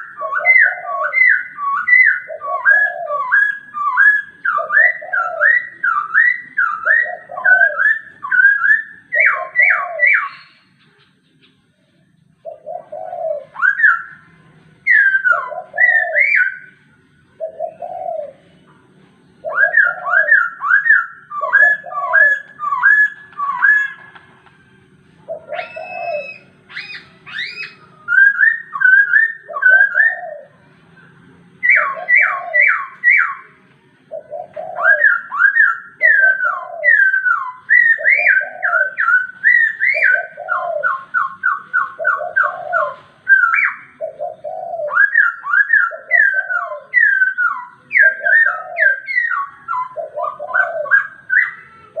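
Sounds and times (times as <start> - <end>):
low cooing: 0.0 - 11.3, 11.9 - 52.0
bird whistled sliding notes: 25.5 - 30.3.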